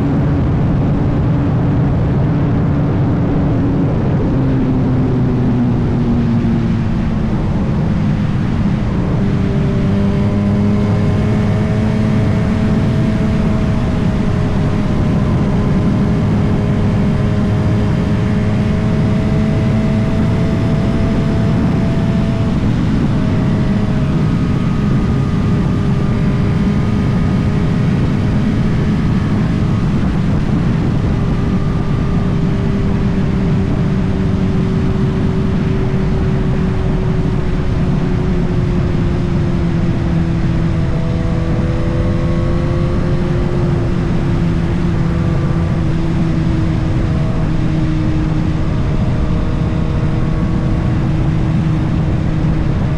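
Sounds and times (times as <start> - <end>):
motorcycle engine running: 0.0 - 52.9
rush of noise: 0.0 - 52.9.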